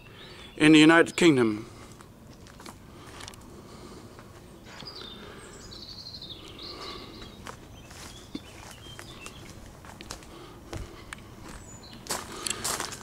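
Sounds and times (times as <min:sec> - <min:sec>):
bird singing faintly: 0:00.0 - 0:01.9, 0:04.5 - 0:09.7.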